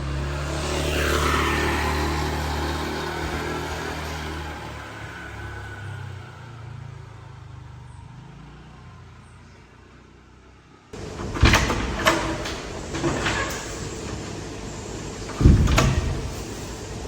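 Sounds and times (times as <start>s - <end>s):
sharp knocks and clatters: 11.0s - 14.4s, 15.2s - 16.9s.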